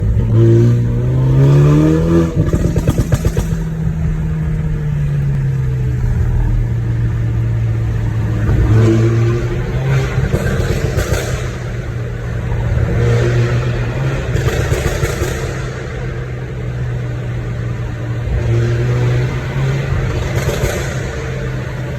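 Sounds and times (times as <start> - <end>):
car engine idling: 0.0 - 21.9
car engine revving: 0.0 - 21.9
exhaust pops and crackles: 2.2 - 17.0, 19.7 - 21.9.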